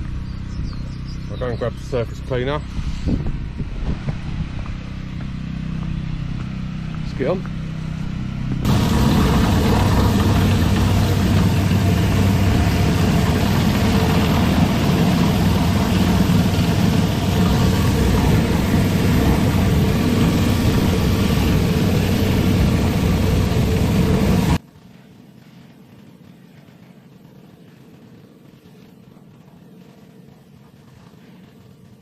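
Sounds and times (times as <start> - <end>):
pressure washer engine hum: 8.0 - 24.6
water spraying hiss: 8.7 - 24.6.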